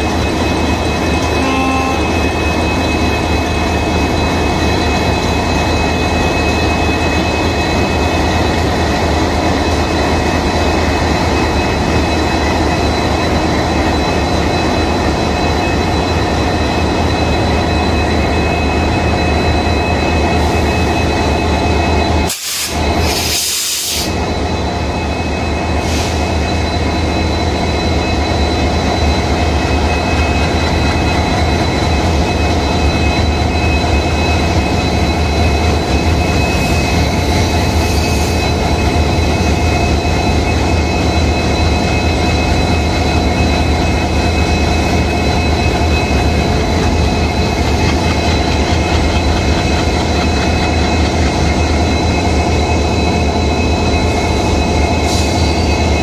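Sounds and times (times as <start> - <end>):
train rumbling past: 0.0 - 56.0
high-pitched whines: 24.1 - 56.0.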